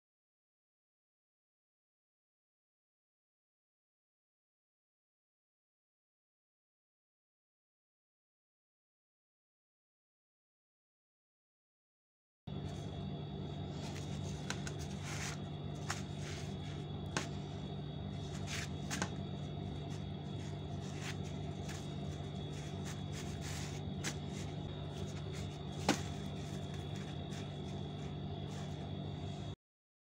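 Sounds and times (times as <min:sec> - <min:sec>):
low hum with high whine: 0:12.5 - 0:29.6
flatbread rustling and crinkling: 0:12.6 - 0:29.6.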